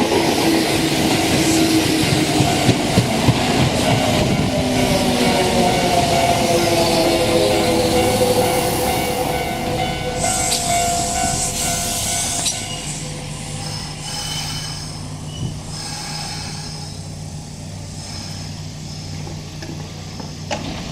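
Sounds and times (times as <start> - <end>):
train brakes squealing: 0.0 - 20.6
train low hum: 0.0 - 20.9
brake hiss: 10.0 - 20.9.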